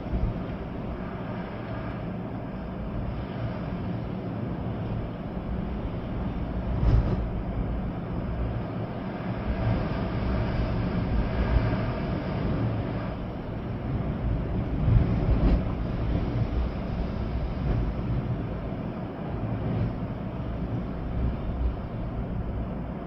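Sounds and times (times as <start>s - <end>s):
rain: 0.0s - 23.0s
wind buffeting microphone: 0.0s - 23.0s.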